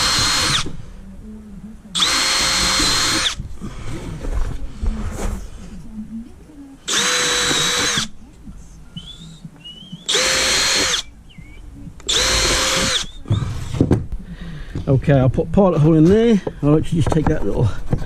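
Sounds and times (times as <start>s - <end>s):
power drill drilling into wood: 0.0s - 0.8s, 2.0s - 3.5s, 6.9s - 8.1s, 10.1s - 11.1s, 12.0s - 13.8s.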